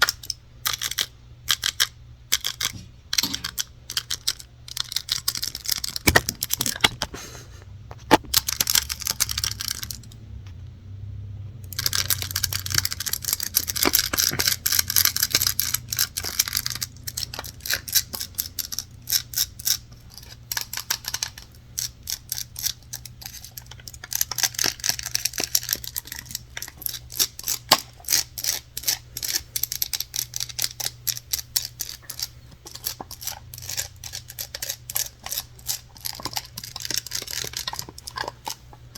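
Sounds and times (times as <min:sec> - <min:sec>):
scratching on hard objects: 0:11.7 - 0:38.9.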